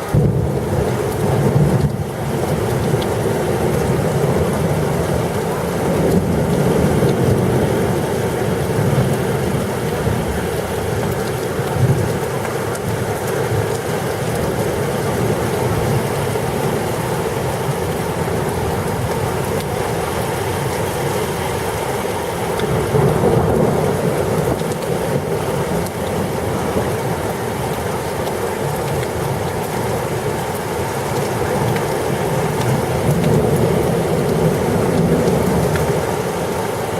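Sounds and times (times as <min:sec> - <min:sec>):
heavy rain pouring: 0:00.0 - 0:36.9
thunder rumbling: 0:15.2 - 0:26.9.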